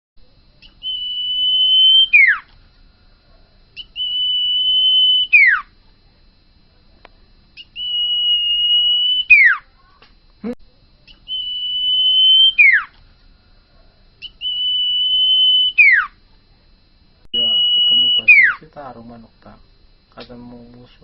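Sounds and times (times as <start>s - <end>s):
bird whistling: 0.6s - 2.5s, 3.8s - 5.7s, 7.6s - 9.7s, 11.1s - 12.9s, 14.2s - 16.2s, 17.4s - 18.6s.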